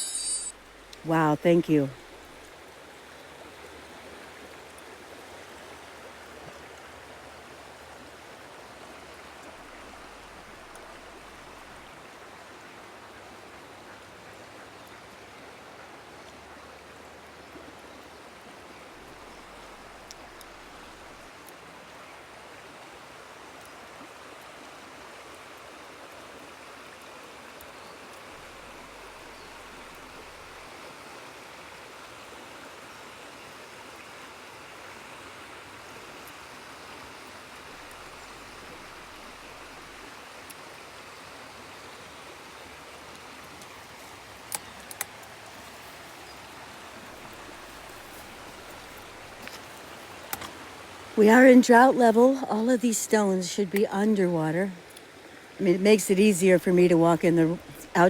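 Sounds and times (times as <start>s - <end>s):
river babbling over stones: 0.0s - 58.0s
faint small ticks: 19.1s - 21.6s, 43.1s - 50.6s.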